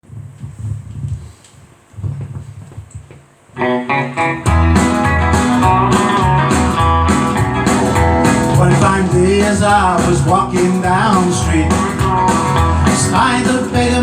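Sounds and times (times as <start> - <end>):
country music on guitars and bass: 3.6 - 14.0.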